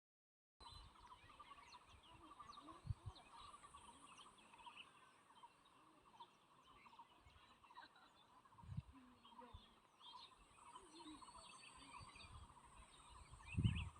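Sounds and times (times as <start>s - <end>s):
small birds chirping: 0.6s - 13.9s
wind bumps on microphone: 8.6s - 8.9s, 13.2s - 13.9s.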